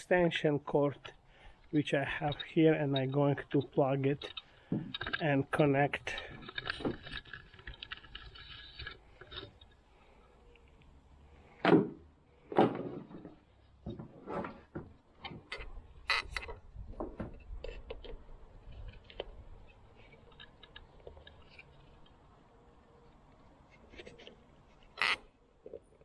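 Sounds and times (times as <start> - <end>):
objects clattering: 2.0 - 10.2, 11.5 - 16.2.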